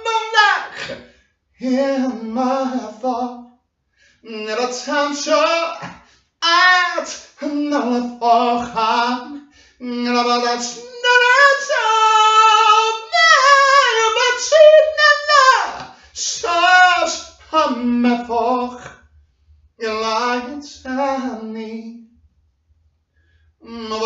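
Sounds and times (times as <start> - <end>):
high voice singing unaccompanied: 0.0 - 1.0, 4.3 - 18.9, 19.8 - 21.6, 23.6 - 24.0.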